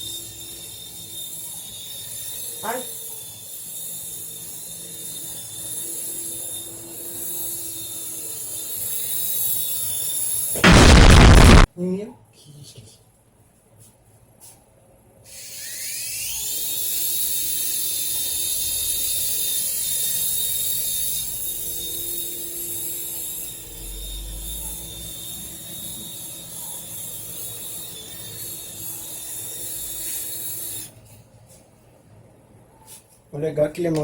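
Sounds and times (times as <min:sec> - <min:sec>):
toy helicopter motors whining: 0:00.0 - 0:10.6, 0:15.3 - 0:31.1.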